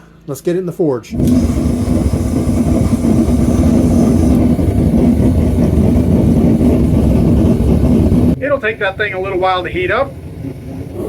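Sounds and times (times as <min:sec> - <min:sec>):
forge roaring: 0:01.1 - 0:08.4
constant hum: 0:01.1 - 0:11.0.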